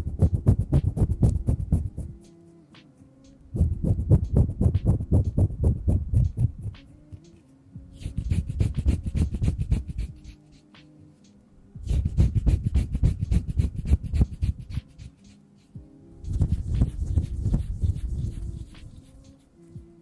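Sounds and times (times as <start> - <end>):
hands rubbing against microphone: 0.0 - 2.9, 3.6 - 19.8.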